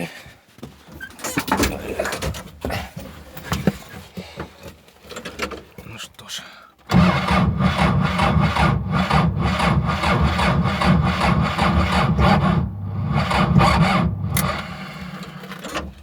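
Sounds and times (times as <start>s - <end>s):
electric starter cranking diesel engine: 6.9s - 16.0s.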